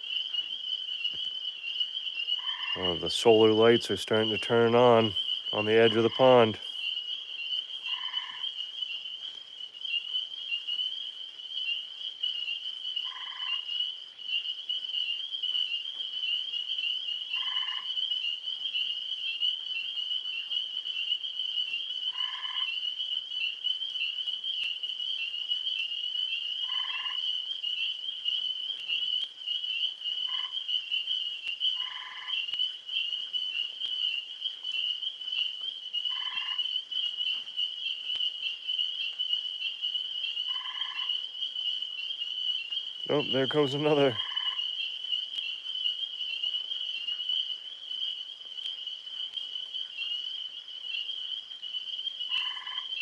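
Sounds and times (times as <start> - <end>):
tree frogs trilling chorus: 0.0 - 53.0.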